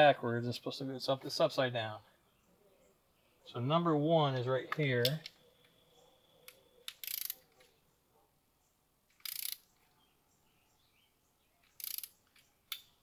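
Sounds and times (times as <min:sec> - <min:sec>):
ratchet wrench clicking: 0:06.9 - 0:07.4, 0:09.2 - 0:09.6, 0:11.7 - 0:13.0.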